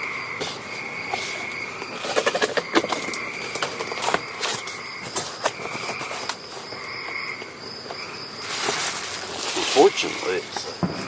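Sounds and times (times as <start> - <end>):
insect chirring: 0.0 - 11.0
rustling and crackling of gear: 7.8 - 10.9.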